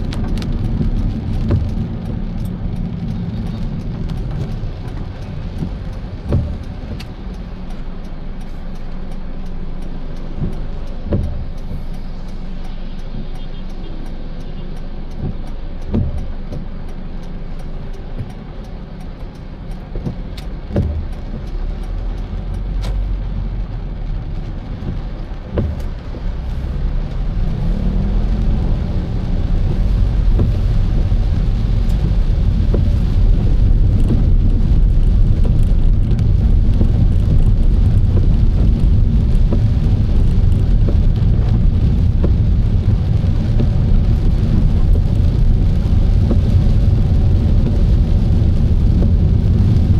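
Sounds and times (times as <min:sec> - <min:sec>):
car driving on wet road: 0:00.0 - 0:49.9.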